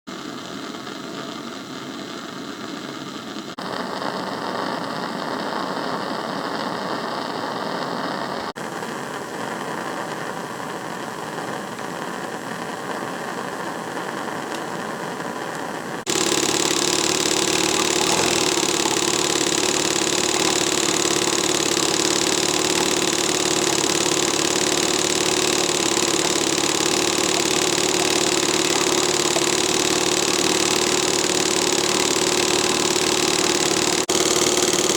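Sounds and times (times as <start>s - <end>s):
model steam engine running: 16.1s - 34.9s.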